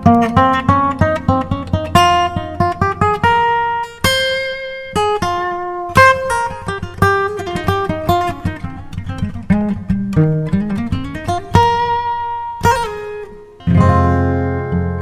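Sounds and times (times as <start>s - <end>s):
acoustic guitar melody: 0.0s - 15.0s.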